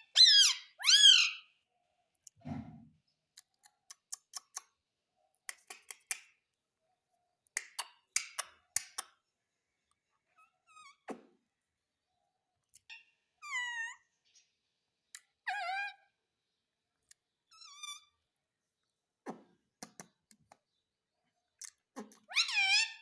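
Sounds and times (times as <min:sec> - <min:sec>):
parrot whistled calls: 0:00.1 - 0:01.5
parrot clicks and chirps: 0:03.3 - 0:04.8, 0:05.4 - 0:06.4, 0:07.5 - 0:09.2, 0:19.3 - 0:20.7.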